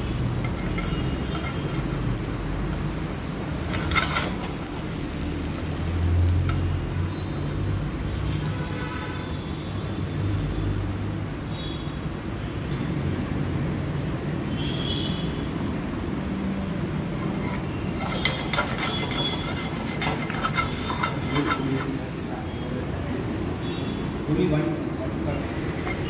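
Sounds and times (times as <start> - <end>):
oil crackling and popping: 0.0 - 12.7
food sizzling in oil: 0.0 - 12.8, 16.7 - 26.0.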